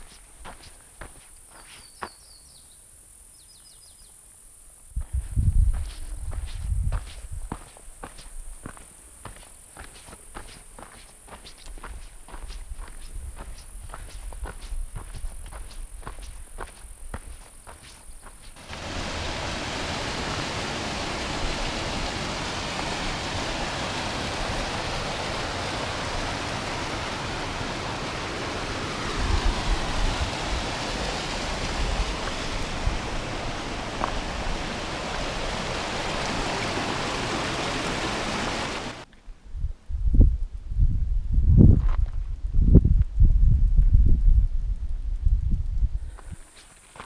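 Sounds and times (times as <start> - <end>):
mountain stream rushing: 7.5 - 39.1.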